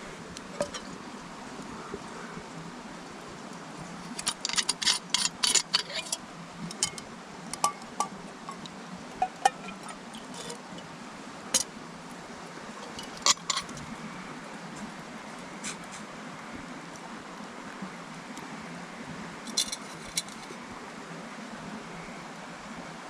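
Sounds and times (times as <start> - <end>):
campfire crackling: 0.0 - 16.0, 19.4 - 20.8
fire popping: 3.8 - 10.9.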